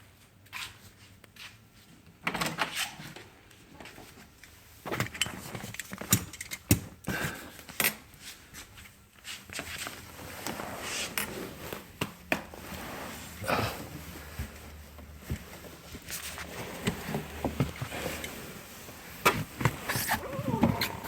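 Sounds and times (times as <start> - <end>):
rustling: 8.2 - 21.0.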